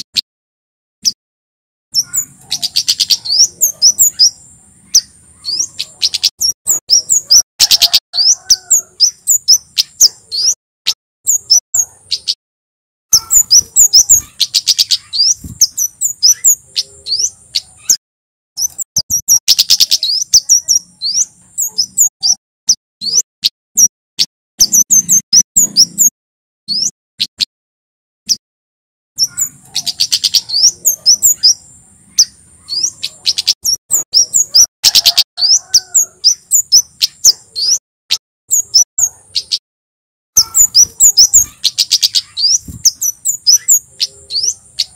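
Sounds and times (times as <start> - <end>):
bird singing rapid high chirps: 1.9 - 12.4, 13.1 - 18.0, 18.6 - 27.5, 29.2 - 39.6, 40.4 - 44.9
thin high bird trill: 2.0 - 10.6, 13.1 - 18.0, 18.6 - 23.2, 29.2 - 37.8, 40.4 - 44.9.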